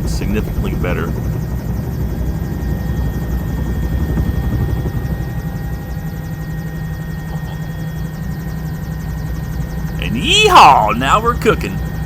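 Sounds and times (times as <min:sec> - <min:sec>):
helicopter rotor and engine rumble: 0:00.0 - 0:12.0
turbine whine: 0:00.0 - 0:12.0.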